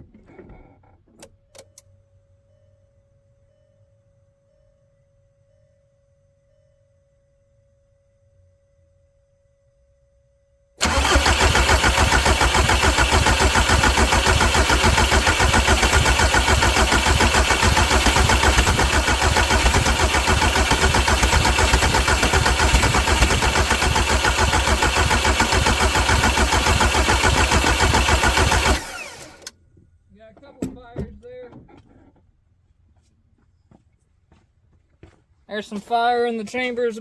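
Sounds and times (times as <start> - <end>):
diesel engine cranking: 10.8 - 29.5.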